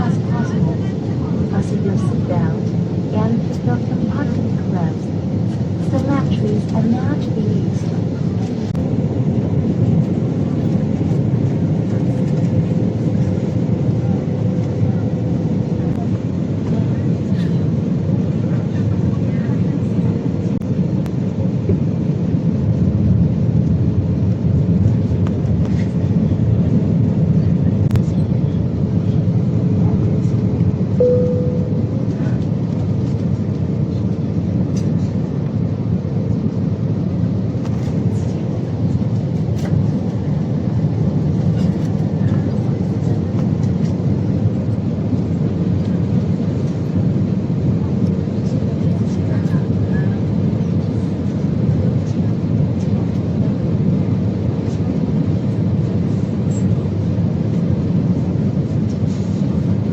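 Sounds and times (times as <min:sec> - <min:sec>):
airplane cabin airflow and engine hum: 0:00.0 - 0:59.9
faint steady tone: 0:31.0 - 0:32.0.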